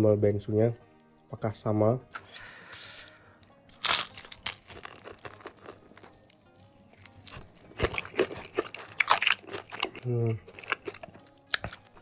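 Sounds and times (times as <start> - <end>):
crunching fried chicken: 3.4 - 12.0.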